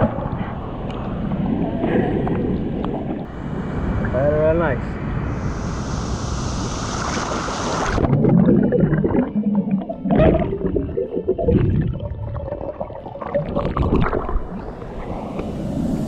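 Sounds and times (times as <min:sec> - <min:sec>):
water gurgling and sloshing: 0:00.0 - 0:04.2, 0:06.9 - 0:16.0
steady rushing noise: 0:03.2 - 0:08.1, 0:14.6 - 0:16.0.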